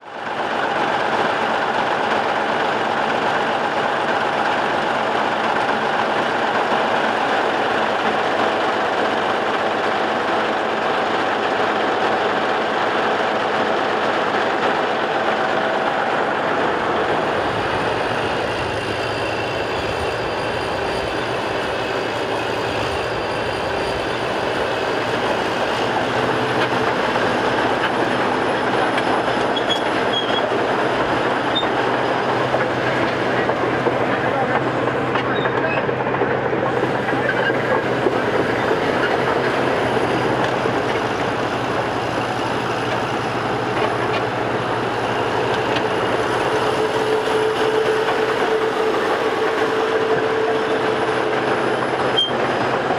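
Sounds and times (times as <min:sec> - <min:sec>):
steel tracks clanking and squealing: 0:16.6 - 0:52.9.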